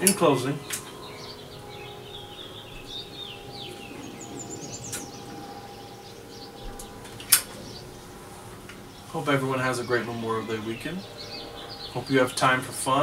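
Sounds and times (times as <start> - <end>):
faint steady hum: 0.0 - 13.0
small birds chirping: 0.0 - 13.0.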